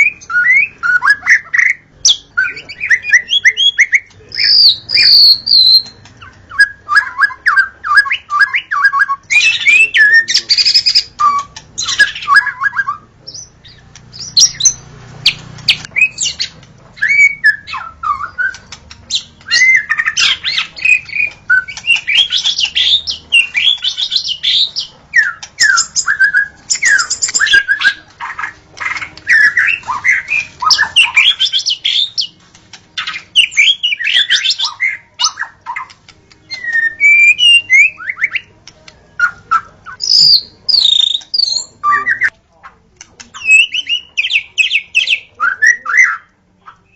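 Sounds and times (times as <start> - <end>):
bird singing whistled phrases: 0.0 - 32.4, 33.0 - 38.5, 39.2 - 42.3, 43.4 - 46.9.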